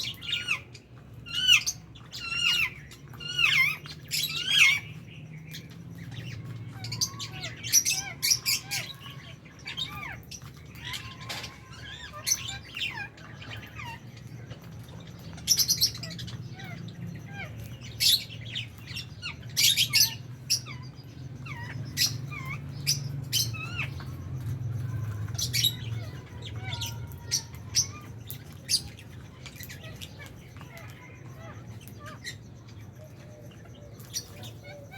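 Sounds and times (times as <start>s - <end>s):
lovebirds chirping and squawking: 0.0s - 34.9s.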